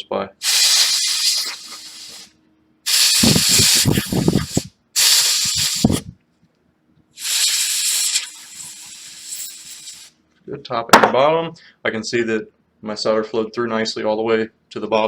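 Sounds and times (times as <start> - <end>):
compressed air spray hissing: 0.4 - 6.2, 7.2 - 10.2.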